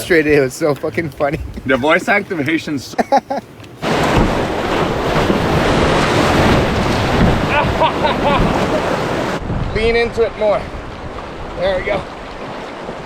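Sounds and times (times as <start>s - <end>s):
wind buffeting microphone: 0.0s - 2.7s, 3.4s - 13.0s
whitewater river rapids rushing: 3.5s - 9.4s.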